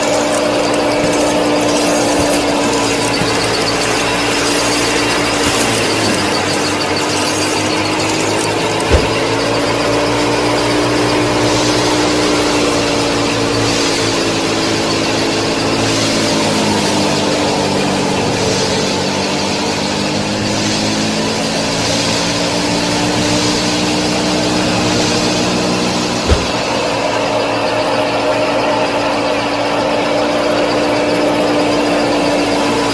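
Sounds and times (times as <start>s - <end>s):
small model tractor motor running: 0.0s - 27.2s.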